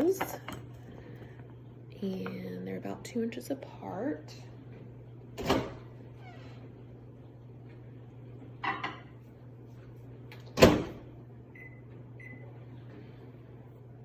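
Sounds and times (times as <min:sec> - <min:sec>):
microwave door shutting: 0:10.5 - 0:11.0.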